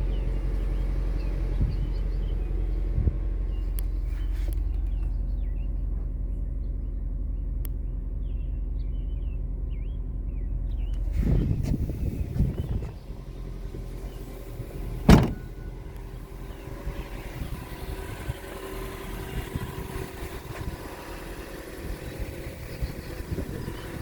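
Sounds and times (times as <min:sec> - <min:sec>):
car engine idling: 0:00.0 - 0:24.0
loud thump: 0:15.0 - 0:15.5.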